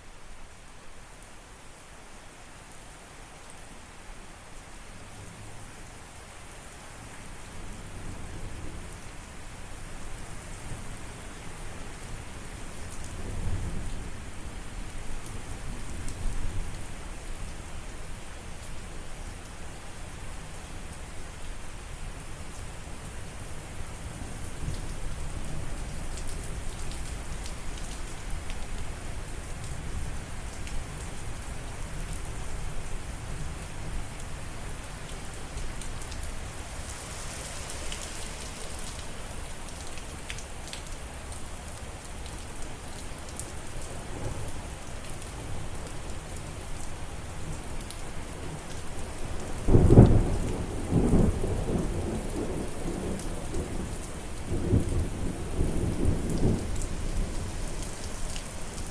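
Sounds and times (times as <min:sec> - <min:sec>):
heavy rain falling: 0:00.1 - 0:58.9
low thunder rumbling: 0:49.7 - 0:53.8.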